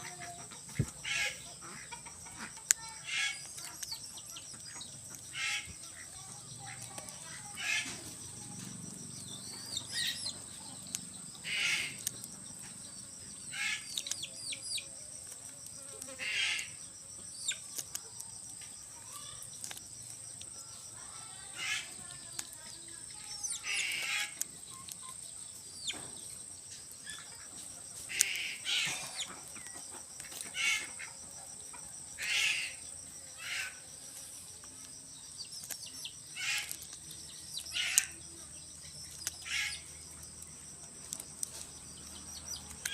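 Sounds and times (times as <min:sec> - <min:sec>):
high-pitched insect drone: 0:00.0 - 0:42.9.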